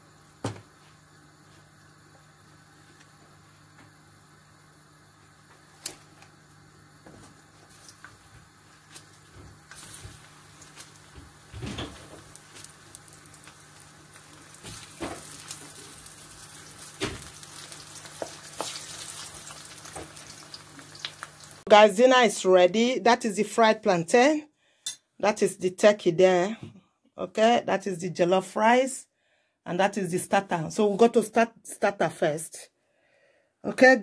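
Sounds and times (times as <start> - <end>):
food sizzling in hot oil: 7.6 - 21.7.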